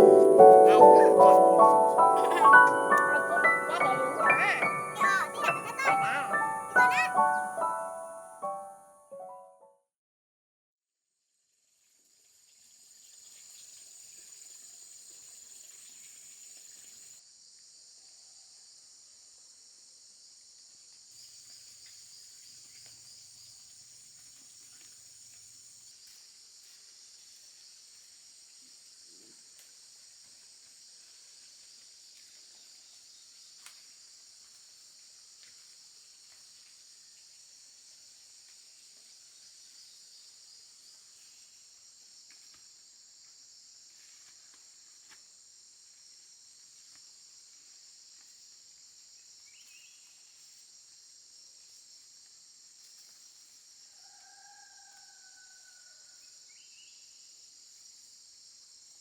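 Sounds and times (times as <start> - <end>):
insects chorus: 0.0 - 8.4, 48.8 - 58.9.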